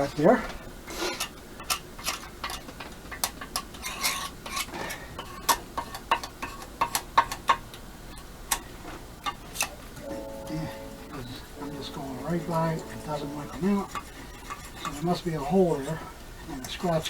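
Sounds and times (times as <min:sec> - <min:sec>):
hand tool scraping metal: 0:13.5 - 0:15.2.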